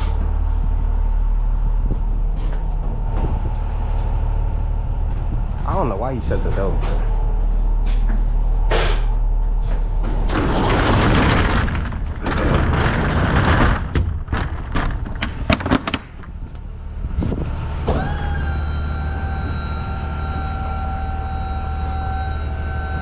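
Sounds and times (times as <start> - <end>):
steady whine: 0.0 - 23.0
sliding door rattling: 8.8 - 17.9.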